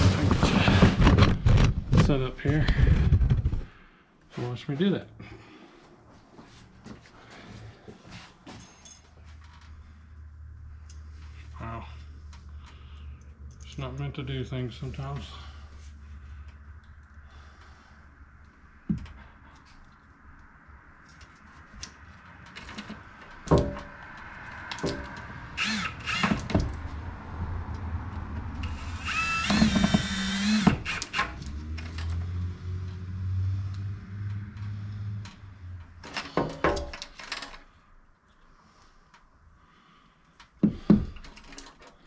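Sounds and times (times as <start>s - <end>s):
knocks and clatter: 0.0s - 3.7s, 22.5s - 25.3s
power drill driving screws: 25.6s - 26.6s, 28.6s - 32.0s.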